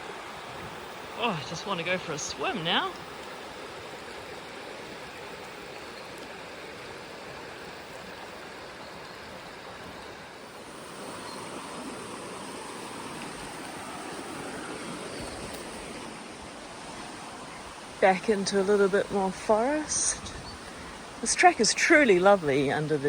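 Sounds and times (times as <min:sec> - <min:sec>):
river water rushing over rocks: 0:00.0 - 0:23.0.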